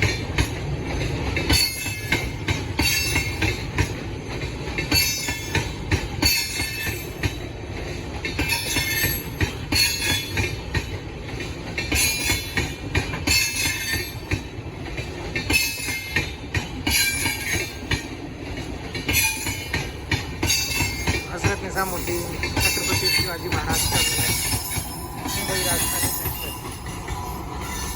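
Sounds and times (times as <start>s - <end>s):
train wheels rumbling on rail: 0.0s - 27.9s
high-pitched wheel squeals: 22.6s - 27.9s.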